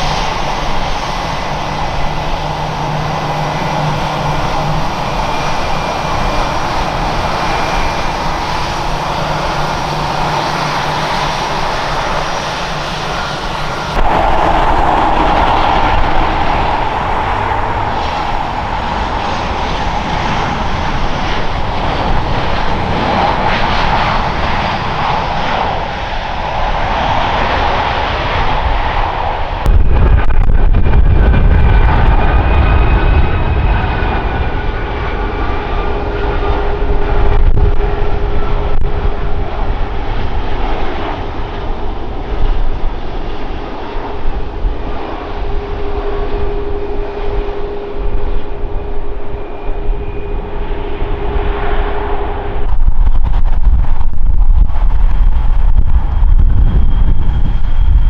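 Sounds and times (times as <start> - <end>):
deep heavy rumble: 0.0 - 27.3, 44.1 - 58.0
airliner engines roaring: 0.0 - 58.0
steady whining tones: 1.3 - 26.9.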